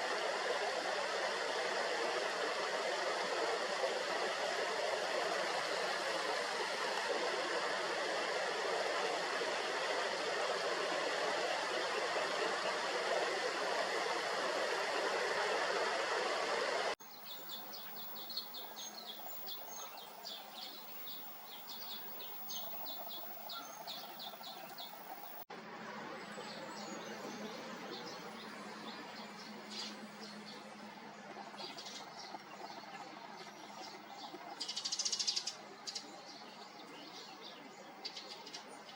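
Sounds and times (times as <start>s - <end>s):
steady rushing noise: 0.0s - 34.6s
bird chirping: 17.0s - 25.4s.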